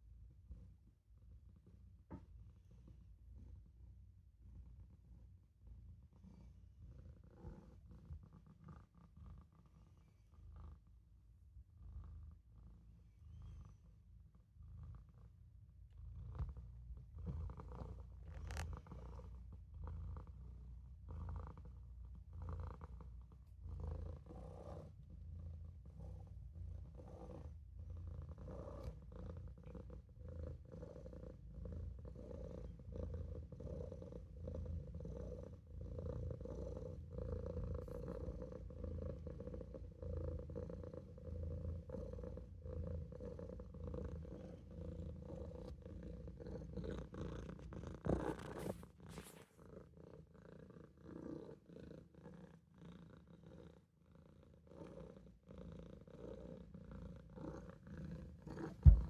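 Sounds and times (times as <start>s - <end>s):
kitten purring: 0.0s - 59.0s
sharp thump: 58.7s - 59.0s.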